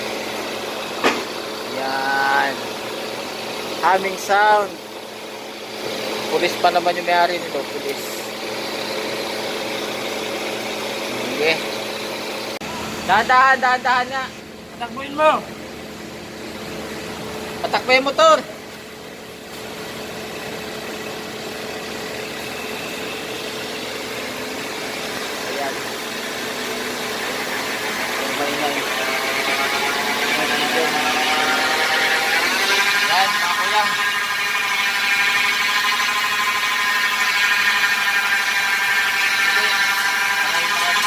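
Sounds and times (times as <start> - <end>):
transmission whine: 0.0 - 41.0
faint high whine: 28.1 - 41.0.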